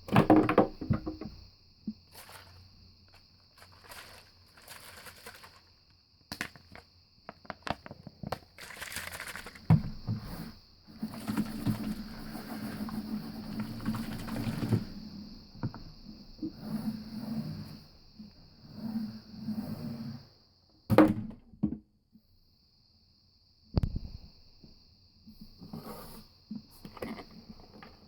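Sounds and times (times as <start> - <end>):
bottles clicking and tapping: 0.0 - 1.4
bottles rubbing or rattling: 2.0 - 2.7, 3.5 - 5.7, 7.8 - 15.0.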